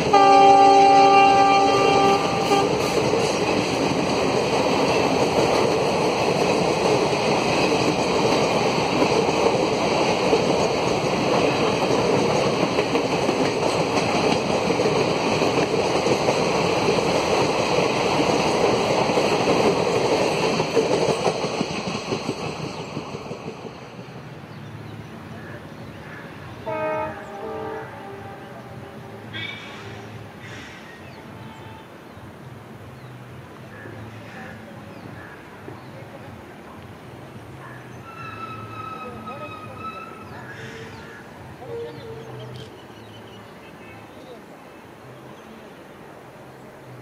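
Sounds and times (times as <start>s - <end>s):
train wheels rushing on rails: 0.0s - 31.6s.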